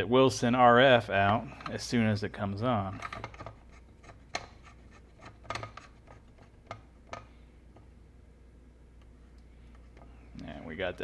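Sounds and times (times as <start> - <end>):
light scratching and rubbing: 2.8 - 7.2.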